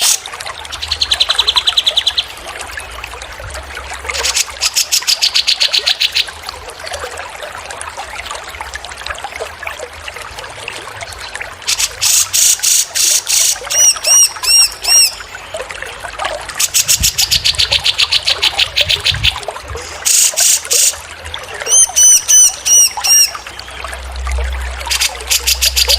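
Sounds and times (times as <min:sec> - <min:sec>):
trickle of running water: 0:00.0 - 0:25.9
songbird calls: 0:21.6 - 0:23.7.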